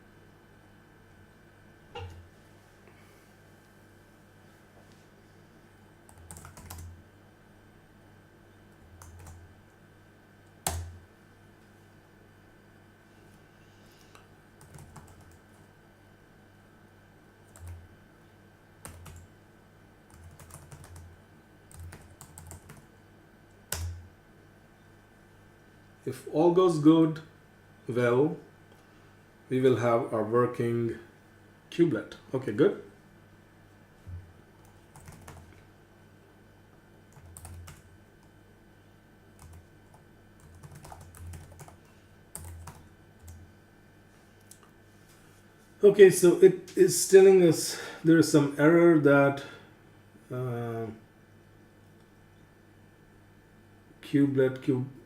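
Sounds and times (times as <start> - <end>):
faint steady hum: 0.0 - 55.0
computer keyboard typing: 6.1 - 6.9, 8.9 - 9.4, 10.6 - 11.0, 14.6 - 15.6, 17.5 - 17.8, 18.8 - 19.3, 20.1 - 21.1, 21.7 - 22.9, 23.7 - 24.0, 34.6 - 35.6, 37.1 - 38.3, 39.4 - 43.4.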